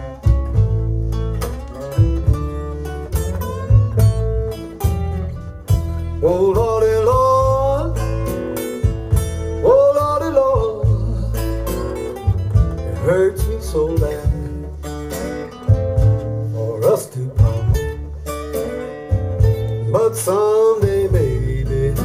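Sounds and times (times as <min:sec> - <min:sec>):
acoustic blues guitars: 0:00.0 - 0:22.0
sliding bent guitar notes: 0:00.0 - 0:22.0.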